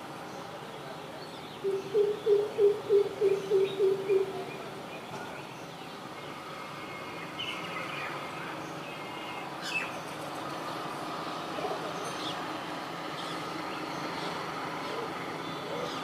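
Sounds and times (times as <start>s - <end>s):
steady background noise: 0.0s - 16.0s
deep bird hooting: 1.6s - 4.5s.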